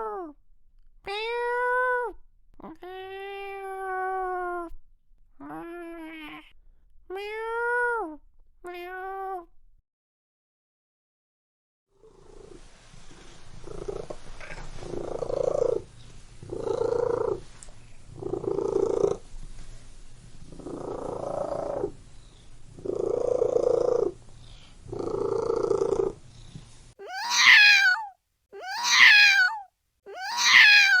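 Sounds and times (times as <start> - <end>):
cat meowing: 1.1 - 4.7, 5.4 - 6.5, 7.1 - 9.5, 27.0 - 31.0
cat purring: 12.0 - 26.9.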